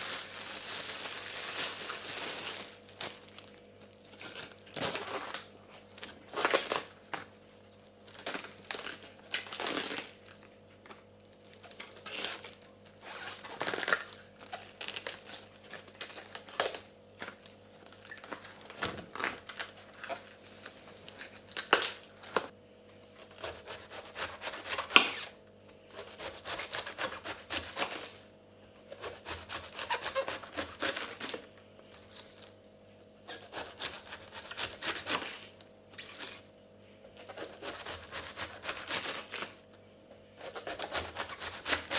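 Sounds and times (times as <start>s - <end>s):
crinkling and rustling: 0.0s - 22.5s
faint steady hum: 0.0s - 41.9s.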